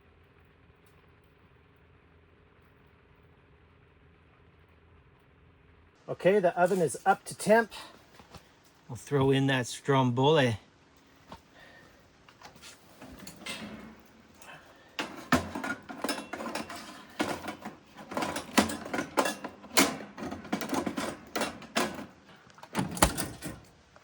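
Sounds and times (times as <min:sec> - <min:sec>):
baking pan rattling: 0:12.8 - 0:23.8
oven door knocks and rattles: 0:13.0 - 0:14.2, 0:15.0 - 0:23.7.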